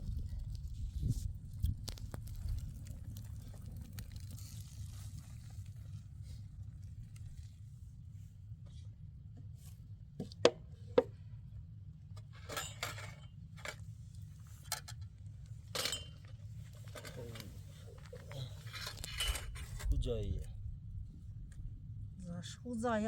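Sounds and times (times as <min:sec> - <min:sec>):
steady low hum: 0:00.0 - 0:23.0
kitchenware clattering: 0:15.8 - 0:16.2.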